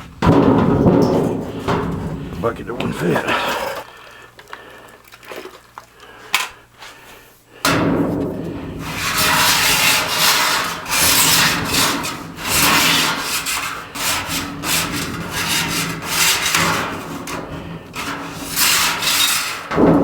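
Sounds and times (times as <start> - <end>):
low steady hum: 0.0 - 12.7
rough rubbing strokes: 8.8 - 17.3.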